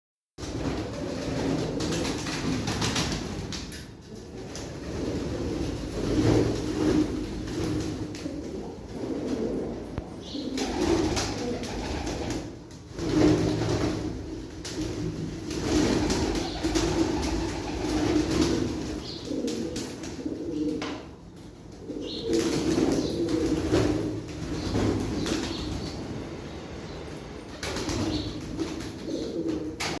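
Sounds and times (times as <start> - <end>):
pigeons cooing: 0.4 - 2.6, 4.1 - 26.1, 27.6 - 30.0
wings flapping: 0.4 - 3.8, 10.5 - 20.2, 27.6 - 30.0.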